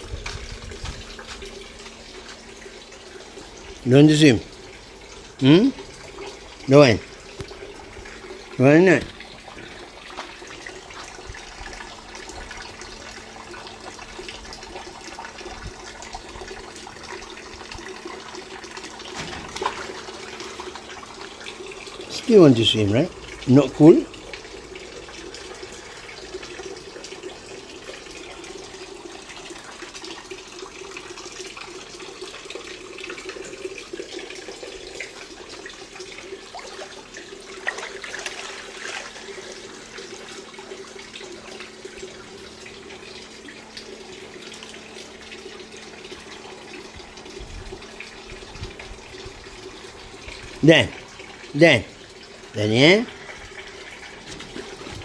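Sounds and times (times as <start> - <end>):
water running: 0.0 - 55.0
small clicks and splashes: 7.2 - 8.2, 9.0 - 22.3, 35.0 - 40.3.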